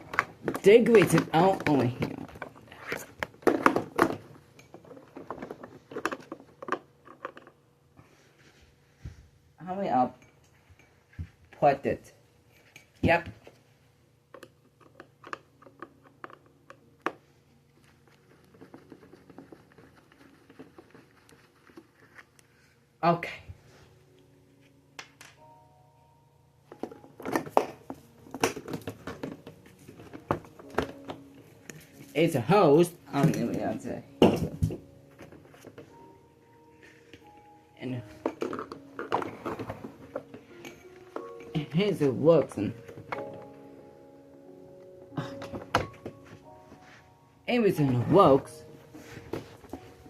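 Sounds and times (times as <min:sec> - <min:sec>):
plastic parts clicking and clattering: 0:00.0 - 0:07.6, 0:26.7 - 0:31.9, 0:38.2 - 0:41.5.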